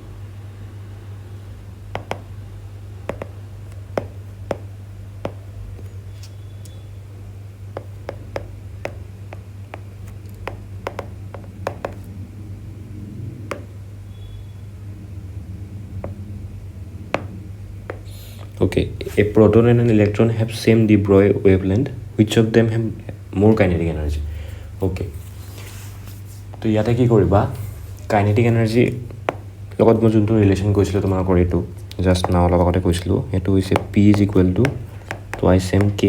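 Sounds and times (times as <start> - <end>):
low steady hum: 0.0 - 36.0
pen tapping on writing surface: 2.0 - 2.3, 3.1 - 5.5, 7.8 - 12.1, 13.5 - 13.8, 17.2 - 18.2, 29.2 - 29.5, 33.7 - 36.0.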